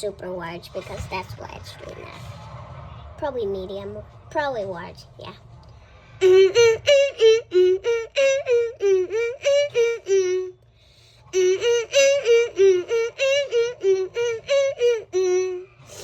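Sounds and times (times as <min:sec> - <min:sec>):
child singing wordless tune: 0:00.0 - 0:02.1, 0:06.2 - 0:10.6, 0:11.3 - 0:16.0.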